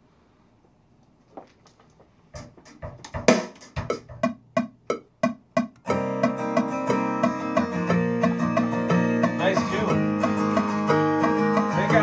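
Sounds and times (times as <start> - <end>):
floor tom drum hits: 2.4 - 5.8
recorded music with plucked strings: 3.0 - 12.0.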